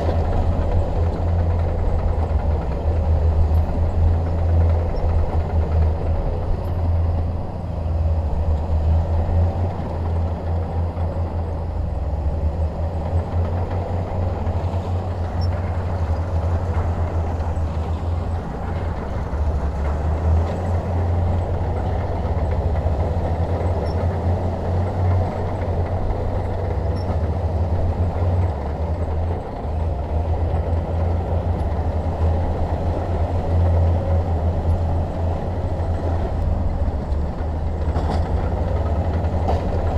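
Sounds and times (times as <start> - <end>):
bulldozer engine droning: 0.0 - 39.9.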